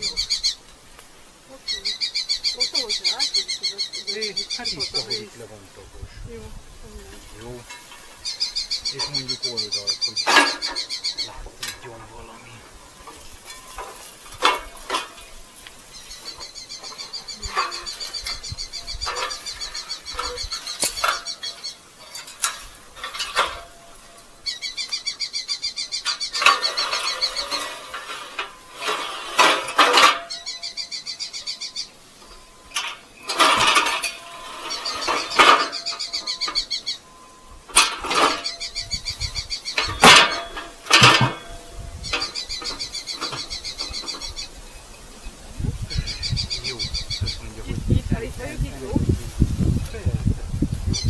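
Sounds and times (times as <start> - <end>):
falcons chattering: 0.0 - 51.0.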